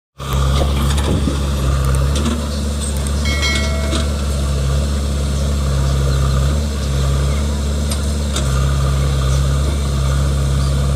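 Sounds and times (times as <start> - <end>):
diesel engine running: 0.2 - 10.9
high-pitched tone: 3.2 - 4.4.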